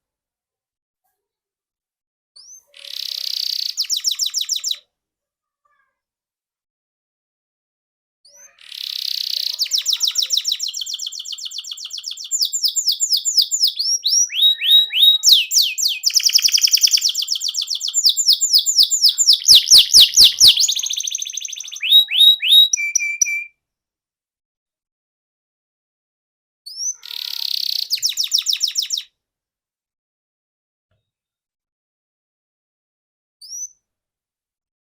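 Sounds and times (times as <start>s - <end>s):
canary singing trills: 2.4s - 4.8s, 8.3s - 23.5s, 26.7s - 29.1s.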